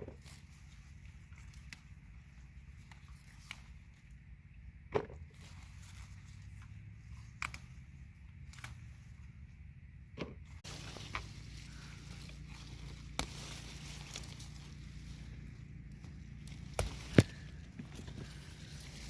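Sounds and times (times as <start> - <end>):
pepper stems snapping: 2.8 - 3.8, 7.2 - 7.8, 8.4 - 8.9, 10.7 - 19.0.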